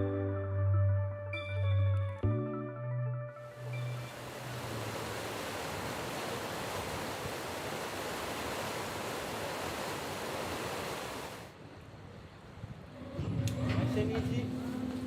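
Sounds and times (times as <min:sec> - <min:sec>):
sea waves washing: 0:03.5 - 0:15.0.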